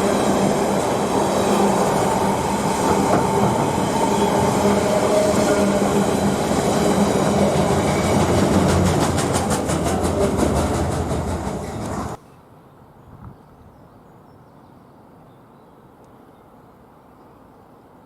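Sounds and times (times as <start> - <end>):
train wheels rumbling on rail: 0.0 - 12.2.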